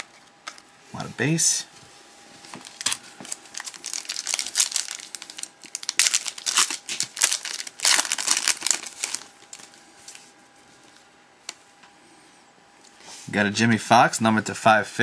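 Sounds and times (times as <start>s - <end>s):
plastic wrapper crinkling and tearing: 2.6s - 9.8s.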